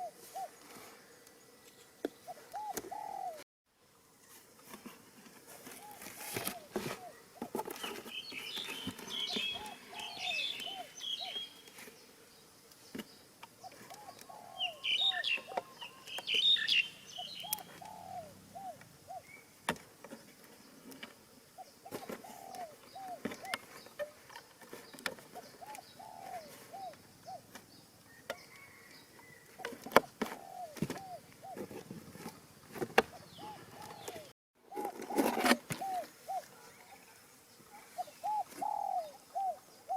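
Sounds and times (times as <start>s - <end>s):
pigeons cooing: 0.0s - 0.9s, 2.3s - 3.4s, 5.6s - 11.6s, 13.6s - 19.4s, 21.6s - 23.6s, 24.8s - 27.6s, 28.4s - 32.0s, 33.0s - 39.9s
small birds chirping: 5.8s - 31.7s, 32.7s - 34.9s, 35.7s - 39.9s.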